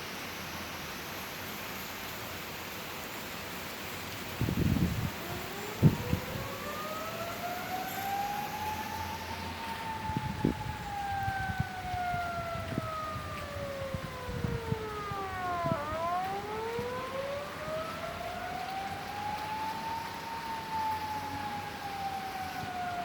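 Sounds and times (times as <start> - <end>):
siren wailing: 4.4 - 23.0.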